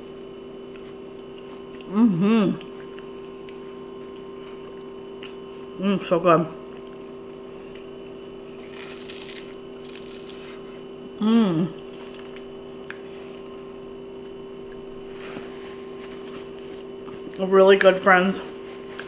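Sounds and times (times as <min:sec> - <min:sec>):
chewing corn on the cob: 0:00.0 - 0:01.9, 0:02.5 - 0:05.8, 0:06.6 - 0:10.7
steady electrical hum: 0:00.0 - 0:19.0
woman humming mmm: 0:01.7 - 0:03.0, 0:11.1 - 0:12.1.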